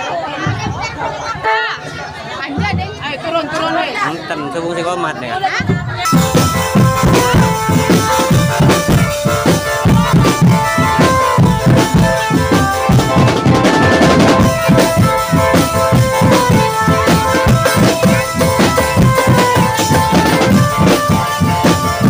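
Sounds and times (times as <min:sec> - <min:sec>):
bass and snare drums: 0:05.6 - 0:22.0
held melodic line: 0:06.0 - 0:22.0.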